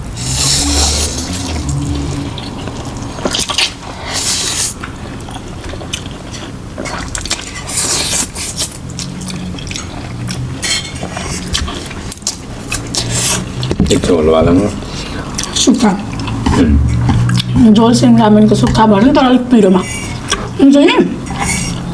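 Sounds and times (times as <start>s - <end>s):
noodles being slurped: 0.0s - 13.7s, 19.6s - 20.6s, 21.2s - 21.9s
utensils clinking on plate: 9.0s - 12.4s, 21.2s - 21.9s.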